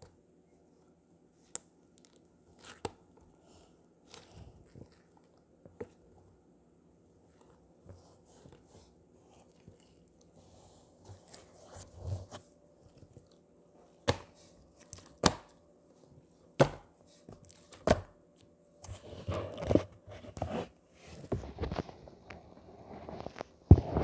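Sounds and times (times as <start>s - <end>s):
slime squishing: 1.3s - 18.1s.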